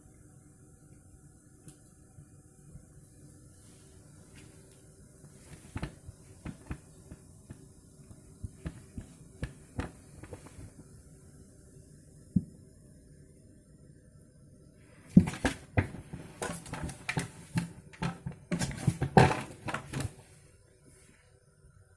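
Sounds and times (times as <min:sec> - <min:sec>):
cat knocking in a bucket: 0:15.1 - 0:20.2.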